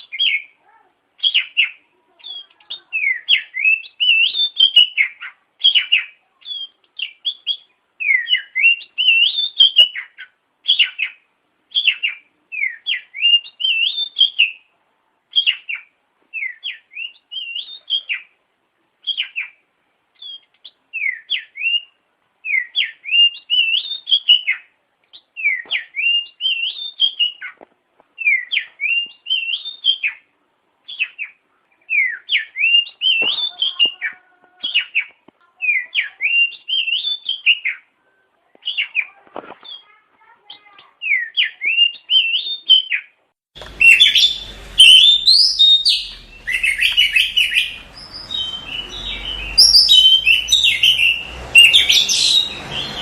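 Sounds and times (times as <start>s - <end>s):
bird singing whistled phrases: 0.0s - 0.6s, 1.2s - 14.6s, 15.4s - 18.3s, 20.2s - 24.7s, 25.4s - 27.5s, 28.2s - 30.2s, 30.9s - 34.0s, 34.6s - 37.8s, 41.0s - 53.0s.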